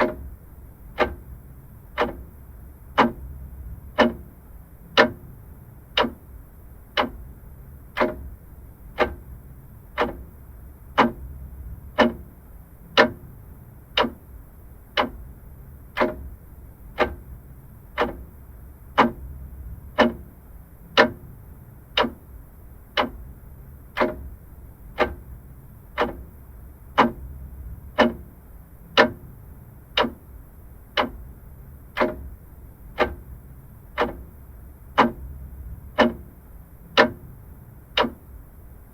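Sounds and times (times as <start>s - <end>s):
faint low hum: 0.0s - 38.9s
mechanical clock ticking: 0.0s - 38.9s.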